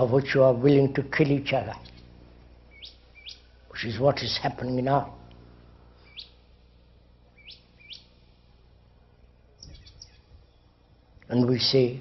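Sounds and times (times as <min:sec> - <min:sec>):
steady low hum: 0:00.0 - 0:12.0
small bird chirping: 0:01.7 - 0:03.6, 0:06.0 - 0:06.6, 0:07.3 - 0:08.4, 0:09.1 - 0:11.3.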